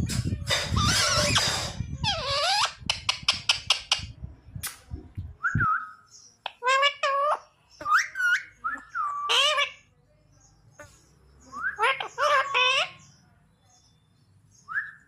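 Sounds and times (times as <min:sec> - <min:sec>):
parrot calling: 0:00.7 - 0:04.1, 0:06.4 - 0:09.8, 0:11.6 - 0:13.0.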